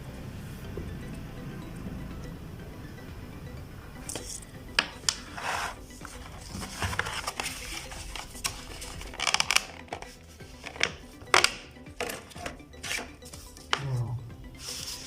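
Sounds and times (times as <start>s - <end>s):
plastic rustling: 5.5s - 11.1s.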